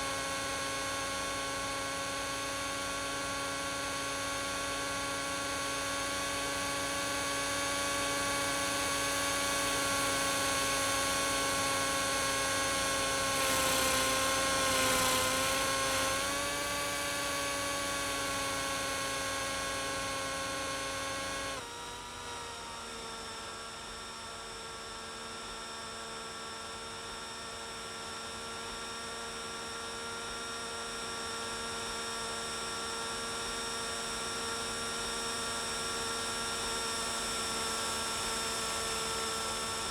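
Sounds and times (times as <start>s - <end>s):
rc helicopter rotor whining: 9.4s - 21.6s.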